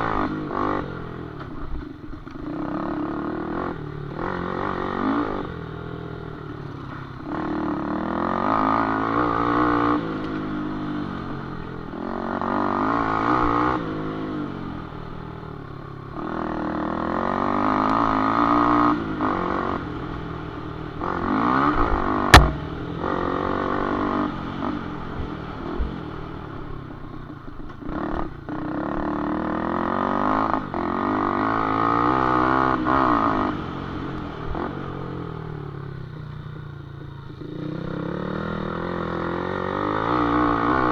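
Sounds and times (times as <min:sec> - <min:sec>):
sharp loud knock: 0:22.4 - 0:23.1.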